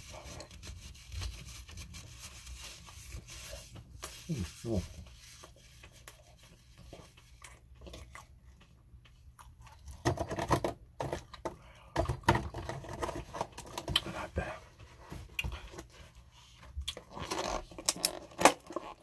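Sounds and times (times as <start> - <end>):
chewing doughnut: 7.1 - 10.0
wet mouth clicks and smacks: 16.8 - 17.1.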